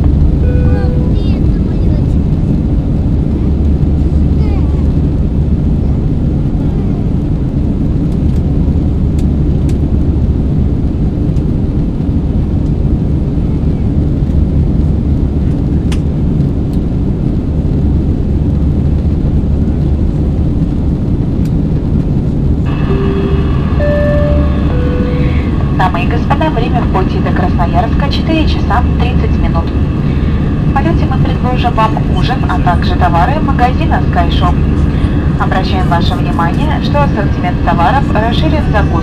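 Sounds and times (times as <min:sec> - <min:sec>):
airplane cabin roar in flight: 0:00.0 - 0:39.0
cabin chime tone: 0:00.4 - 0:01.1, 0:22.8 - 0:25.5.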